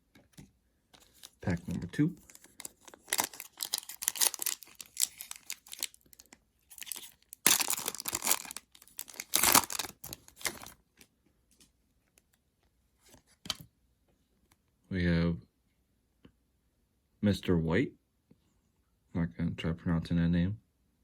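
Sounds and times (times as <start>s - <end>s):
wrapper tearing and crinkling: 1.0s - 10.8s.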